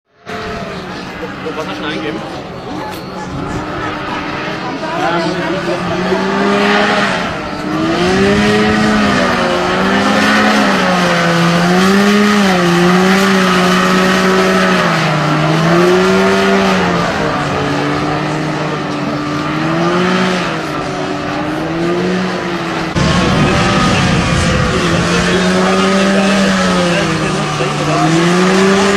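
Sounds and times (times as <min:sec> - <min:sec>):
motor droning: 0:00.2 - 0:28.9
sudden loud rush: 0:22.8 - 0:28.9.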